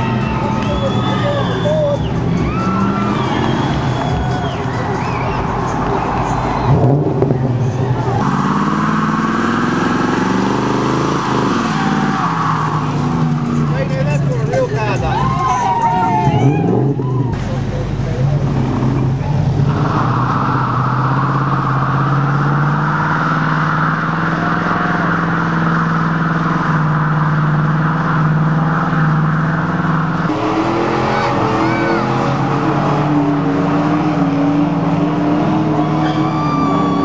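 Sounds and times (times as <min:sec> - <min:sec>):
car engines at low revs: 0:00.0 - 0:37.0
engine held at high revs: 0:08.2 - 0:14.4, 0:18.2 - 0:37.0
tyres squealing: 0:26.8 - 0:37.0.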